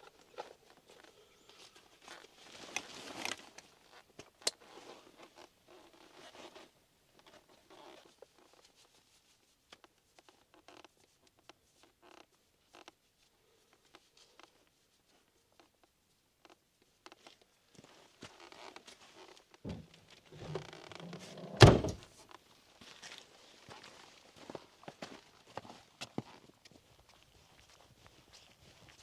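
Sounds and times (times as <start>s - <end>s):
rustling: 19.7s - 22.1s.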